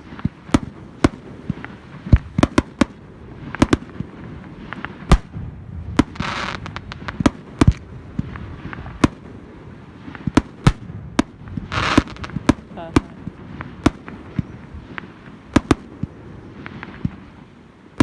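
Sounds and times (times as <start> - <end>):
firework shells bursting: 0.0 - 9.4, 10.1 - 17.4.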